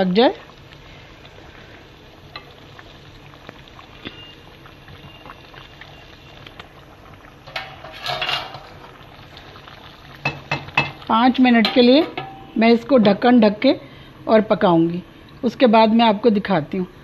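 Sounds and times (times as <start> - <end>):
food bubbling in oil: 0.0 - 17.0
crackling pops: 2.3 - 7.8
cookware clattering: 7.5 - 8.8, 11.6 - 12.5.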